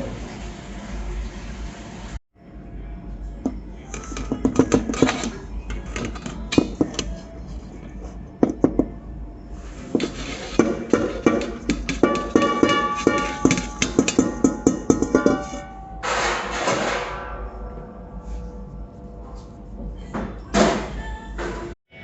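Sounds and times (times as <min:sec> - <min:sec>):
background music: 0:02.5 - 0:16.1
kitchenware knocking and clinking: 0:04.0 - 0:07.1, 0:09.9 - 0:17.2.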